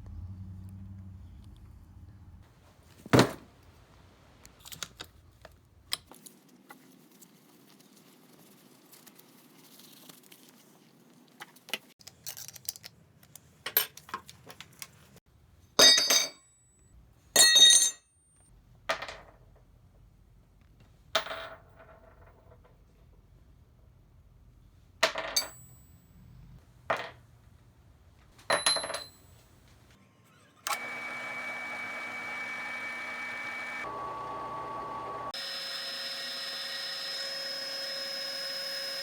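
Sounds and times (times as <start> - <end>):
metal parts and tools clinking: 12.0 - 14.5, 15.8 - 16.5, 17.4 - 18.0, 25.0 - 26.3, 28.4 - 29.5.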